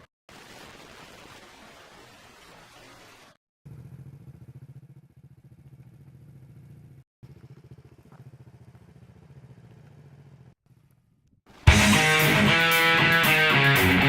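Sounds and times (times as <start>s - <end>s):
small motorbike engine idling: 3.7s - 11.2s.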